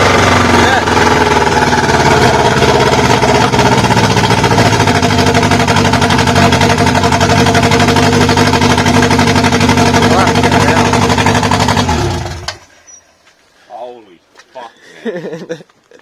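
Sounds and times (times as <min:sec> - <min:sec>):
loud engine running: 0:00.0 - 0:12.7.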